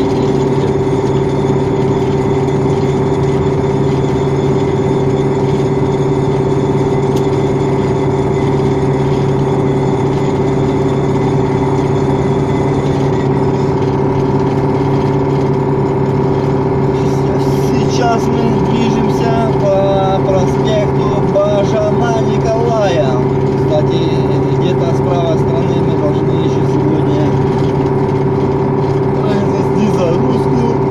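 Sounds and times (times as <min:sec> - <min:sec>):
truck diesel engine running: 0:00.0 - 0:30.9.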